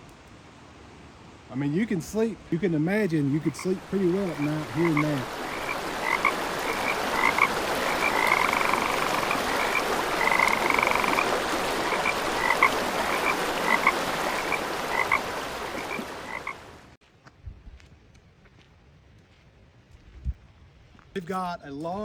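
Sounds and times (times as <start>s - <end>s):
waterfall rushing: 1.9s - 17.0s
frogs calling: 2.8s - 16.8s.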